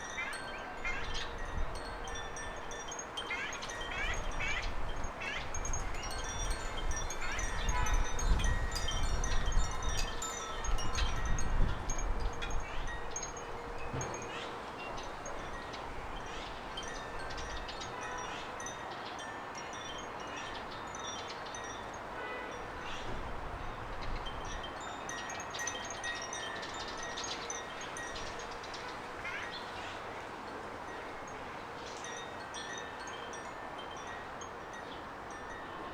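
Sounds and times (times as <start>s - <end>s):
outdoor background hiss: 0.0s - 35.9s
wind rumble on microphone: 3.7s - 14.3s.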